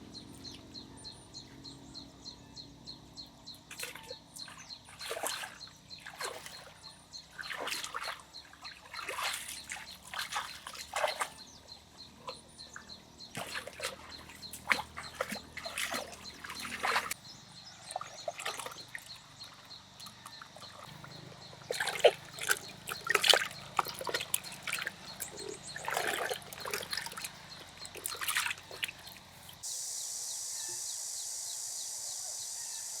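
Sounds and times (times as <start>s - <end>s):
water splashing and sloshing: 3.7s - 29.6s
steady hiss: 29.6s - 33.0s.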